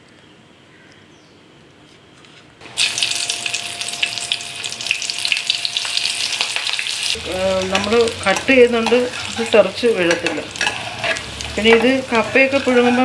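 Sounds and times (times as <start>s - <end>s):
chillies sizzling in hot oil: 2.6s - 13.0s.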